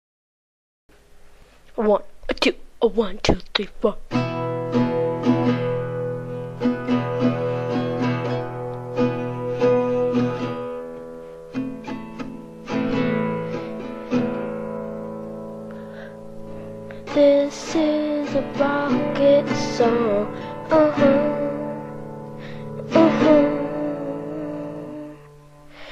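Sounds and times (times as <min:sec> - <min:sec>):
strummed guitar chords: 0:04.1 - 0:25.9.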